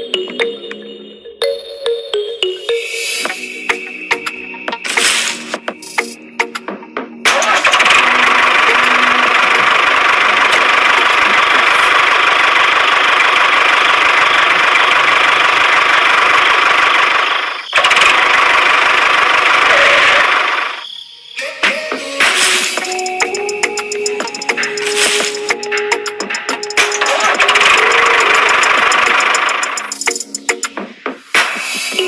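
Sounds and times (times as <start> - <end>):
small motor running: 27.0 - 30.0.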